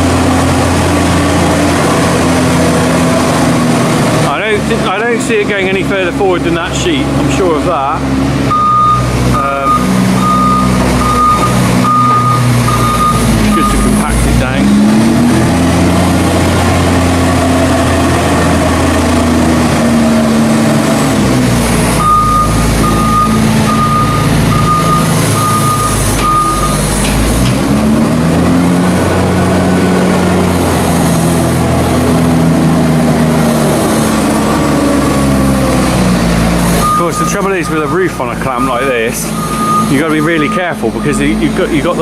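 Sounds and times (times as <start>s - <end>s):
diesel loader engine revving: 0.0s - 42.0s
reversing alarm beeps: 8.5s - 14.1s, 22.0s - 26.8s, 36.8s - 41.5s.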